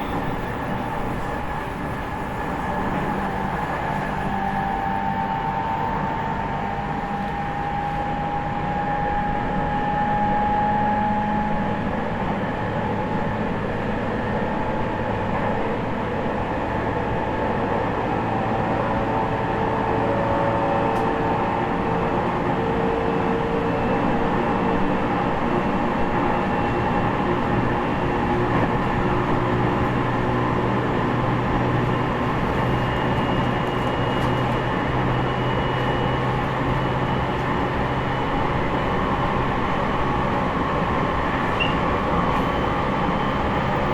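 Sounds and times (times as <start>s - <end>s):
traction motor whine: 0.0s - 7.9s
train wheel and rail noise: 0.0s - 43.9s.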